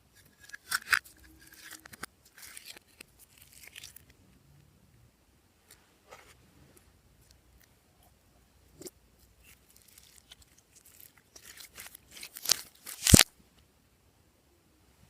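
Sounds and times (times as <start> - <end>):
slime crackling and popping: 0.4 - 4.1, 8.8 - 13.3.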